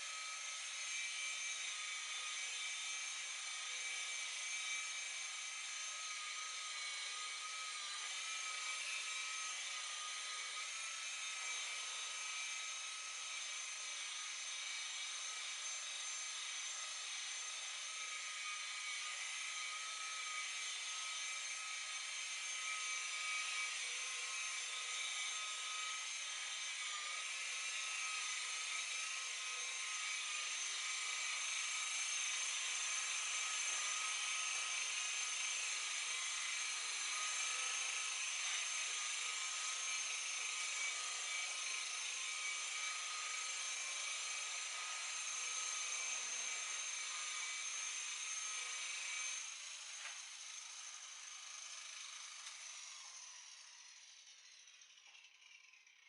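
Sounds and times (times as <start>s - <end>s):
electric buffer whining: 45.9s - 50.3s.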